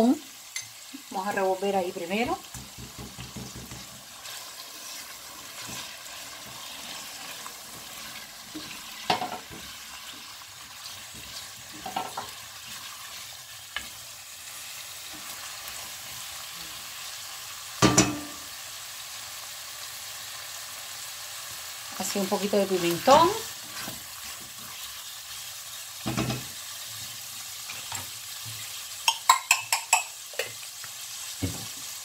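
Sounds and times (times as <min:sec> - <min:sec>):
sauce sizzling in a pot: 0:00.0 - 0:32.0
spatula knocking on a pot: 0:02.2 - 0:04.0, 0:17.8 - 0:18.4.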